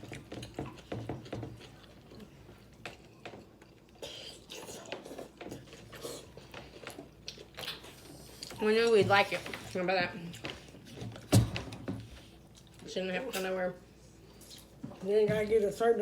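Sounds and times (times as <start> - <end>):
wet chewing smacks: 0.0 - 8.6.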